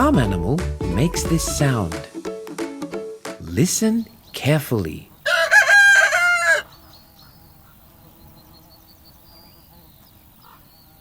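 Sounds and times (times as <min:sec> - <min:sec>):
rooster crowing: 0:05.2 - 0:06.8.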